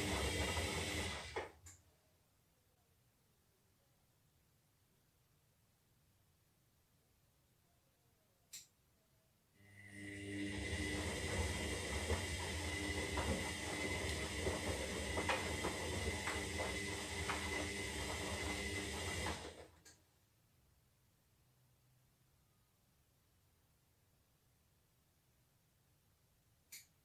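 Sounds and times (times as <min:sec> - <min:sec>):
washing machine drum tumbling: 0:00.0 - 0:01.5, 0:10.5 - 0:19.6.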